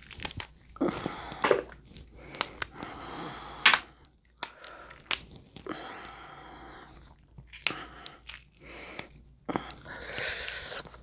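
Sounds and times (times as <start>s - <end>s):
person chewing and crunching: 0.0s - 5.7s, 7.0s - 11.0s
shells cracking: 1.3s - 5.4s, 7.5s - 9.1s.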